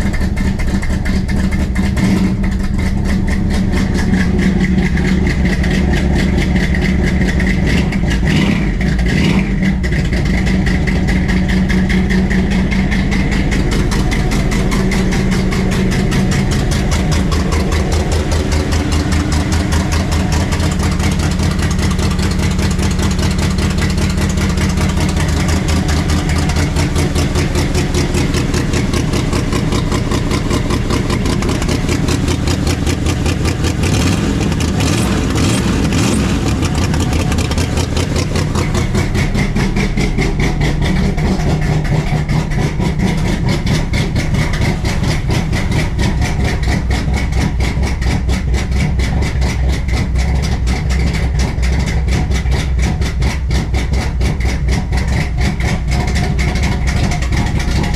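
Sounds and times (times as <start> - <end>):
car engine idling: 0.0 - 57.9.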